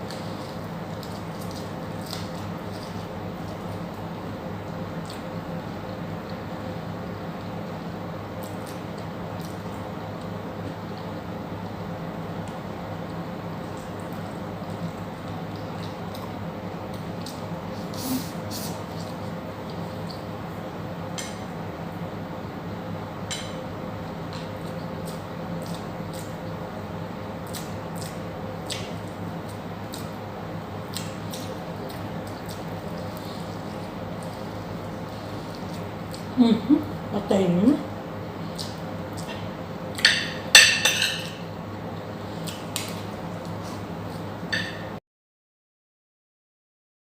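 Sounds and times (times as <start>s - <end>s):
wet chewing and mouth smacks: 0.0s - 4.0s, 13.6s - 18.0s, 24.3s - 26.6s, 27.4s - 30.2s, 30.8s - 36.3s, 38.4s - 40.1s, 42.4s - 44.2s
steady low hum: 0.0s - 45.0s
cutlery and dishes clinking: 40.0s - 41.4s.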